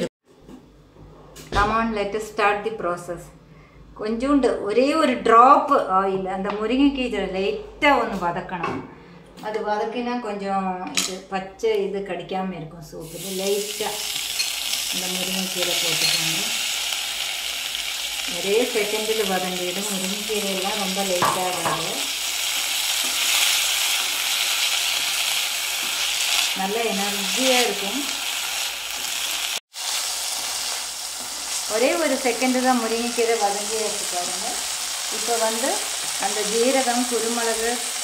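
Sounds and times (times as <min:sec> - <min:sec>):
leaves sizzling in oil: 0:13.0 - 0:38.0.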